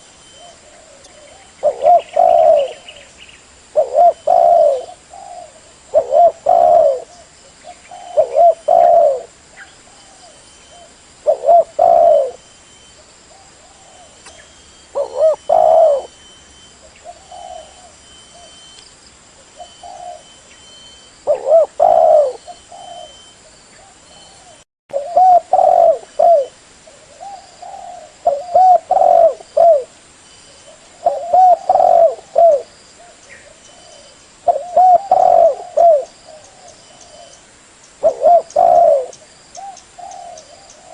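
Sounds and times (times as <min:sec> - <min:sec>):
dove cooing: 0:00.0 - 0:03.1, 0:03.7 - 0:12.6, 0:13.3 - 0:16.2, 0:16.8 - 0:18.6, 0:19.4 - 0:20.5, 0:21.2 - 0:30.0, 0:30.6 - 0:37.4, 0:38.0 - 0:40.9
faint bird chirps: 0:00.0 - 0:40.9.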